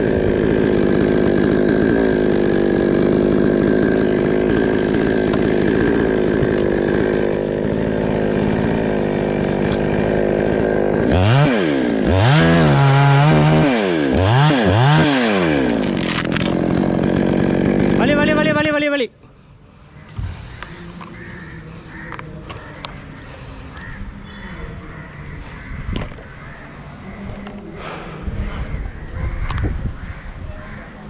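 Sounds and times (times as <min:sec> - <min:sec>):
chainsaw running and revving: 0:00.0 - 0:18.8.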